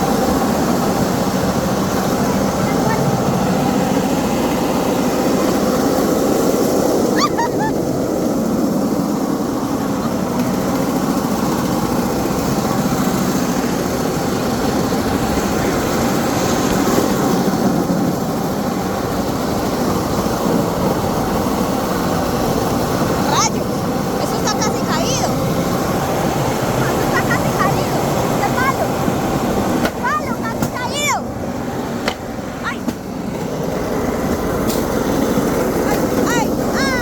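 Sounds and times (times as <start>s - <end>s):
loud rumbling machine noise: 0.0s - 37.0s.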